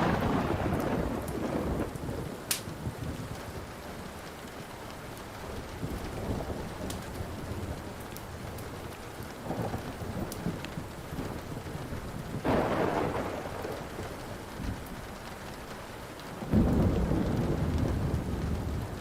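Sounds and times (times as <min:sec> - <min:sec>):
loud thunderclap: 0:00.0 - 0:03.4, 0:09.4 - 0:15.0, 0:16.5 - 0:19.0
rolling thunder: 0:00.0 - 0:03.8, 0:05.5 - 0:15.5, 0:16.4 - 0:19.0
steady rain: 0:00.0 - 0:19.0
wood fire crackling: 0:00.0 - 0:19.0.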